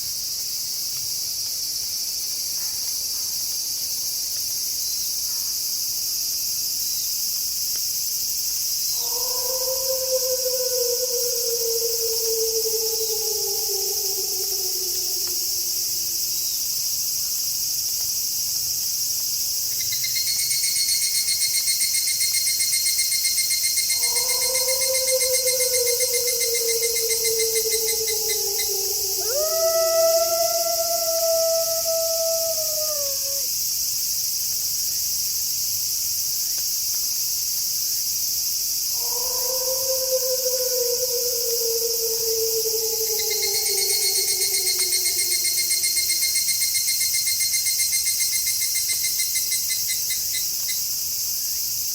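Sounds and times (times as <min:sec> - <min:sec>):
crickets chirping: 0:00.0 - 0:51.9
pulsing insect trill: 0:08.7 - 0:17.0, 0:19.8 - 0:33.6, 0:38.8 - 0:50.9
wolf howling: 0:08.9 - 0:16.6, 0:23.8 - 0:33.5, 0:38.9 - 0:46.5.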